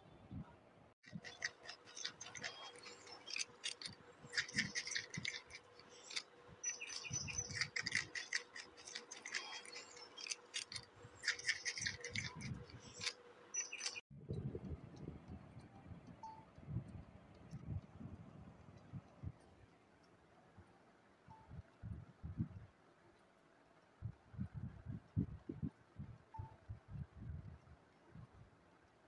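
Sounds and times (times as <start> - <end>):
animal crunching carrot: 1.0 - 14.0.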